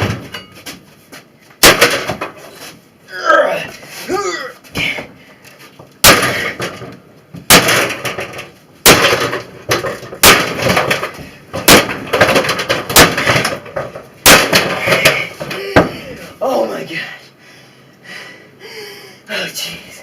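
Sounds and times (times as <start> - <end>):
sledgehammer smashing microwave: 1.6 - 2.4, 6.0 - 16.0
broken pieces clattering: 6.0 - 15.5.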